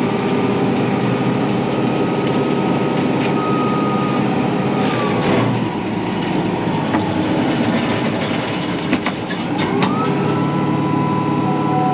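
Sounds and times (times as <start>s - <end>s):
diesel tractor running: 0.0s - 11.9s.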